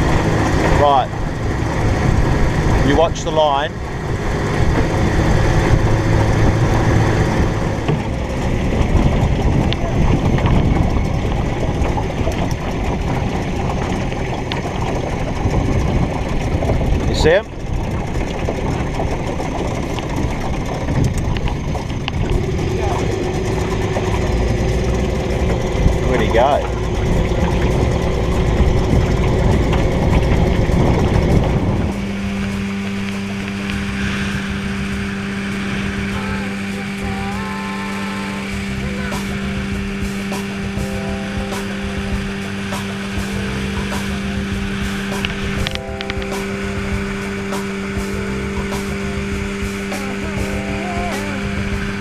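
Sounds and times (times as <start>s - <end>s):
outboard motor running: 0.0s - 52.0s
wind buffeting microphone: 0.0s - 52.0s.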